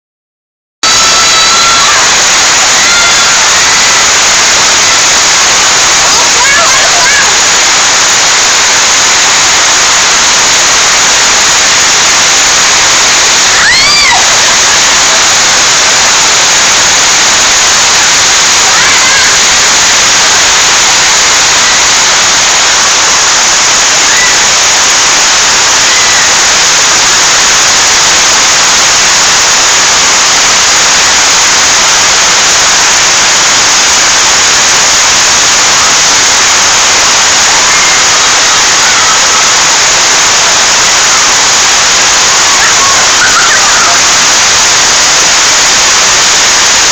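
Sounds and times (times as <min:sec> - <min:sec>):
heavy rain pouring: 0:00.8 - 0:46.9
high-pitched voice: 0:06.0 - 0:07.6, 0:18.7 - 0:19.4, 0:42.3 - 0:44.1.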